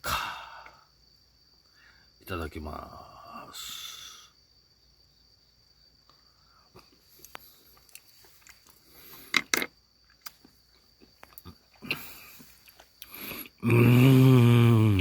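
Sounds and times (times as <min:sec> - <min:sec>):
person chewing: 0:10.2 - 0:13.6.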